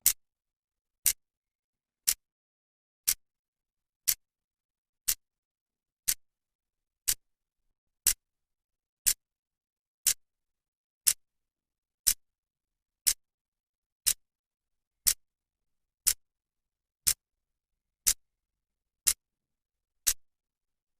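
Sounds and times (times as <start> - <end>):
clock ticking: 6.0 - 6.2, 7.0 - 7.2.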